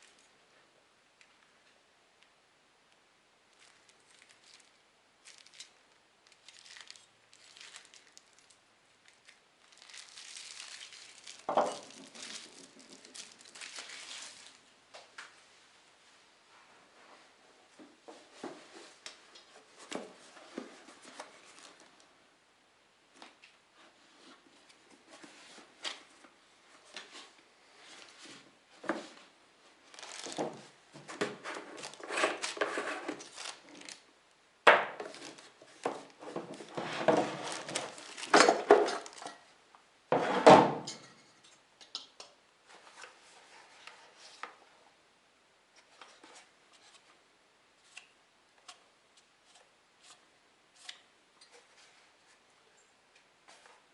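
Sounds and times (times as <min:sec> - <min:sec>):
parts and packaging being handled: 0:03.5 - 0:14.7, 0:18.3 - 0:22.1, 0:29.8 - 0:34.1, 0:34.7 - 0:39.5.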